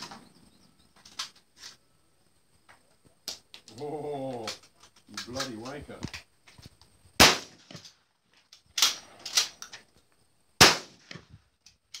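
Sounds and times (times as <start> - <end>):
sharp cracks: 3.2 - 6.3, 7.2 - 9.9, 10.6 - 12.0
shotgun shots: 7.2 - 7.9, 10.6 - 11.2.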